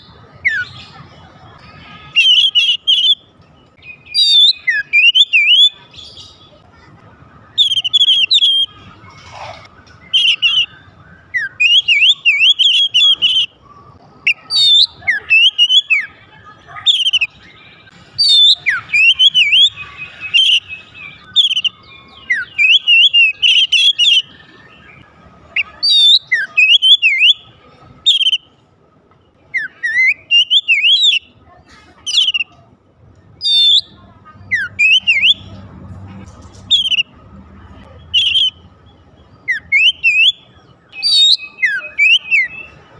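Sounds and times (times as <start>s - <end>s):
bird singing whistled phrases: 2.1s - 6.4s, 7.5s - 8.8s, 9.9s - 13.5s, 14.2s - 16.2s, 16.8s - 27.4s, 28.0s - 28.5s, 29.5s - 31.3s, 32.1s - 32.6s, 33.4s - 35.6s, 36.7s - 37.1s, 38.0s - 38.6s, 39.4s - 42.8s.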